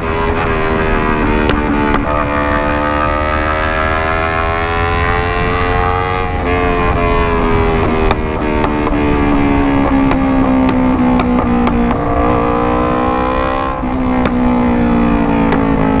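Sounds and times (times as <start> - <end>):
motorcycle engine running: 0.0 - 3.6, 4.5 - 16.0.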